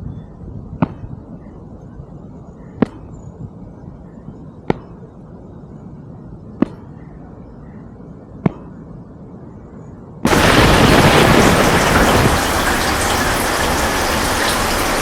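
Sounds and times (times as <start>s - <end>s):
low background noise: 0.0s - 15.0s
sharp cracks: 10.3s - 15.0s.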